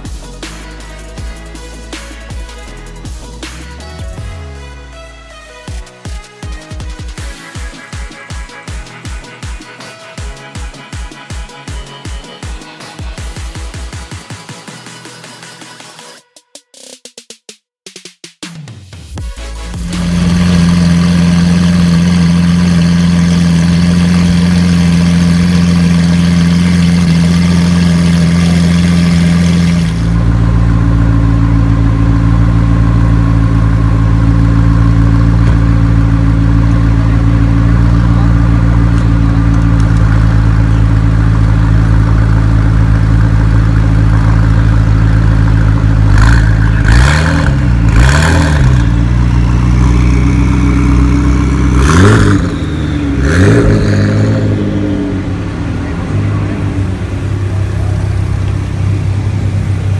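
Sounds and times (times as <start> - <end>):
car engine idling: 0.0 - 15.4, 19.2 - 59.9
engine revving in quick blips: 19.4 - 30.5, 45.2 - 58.6.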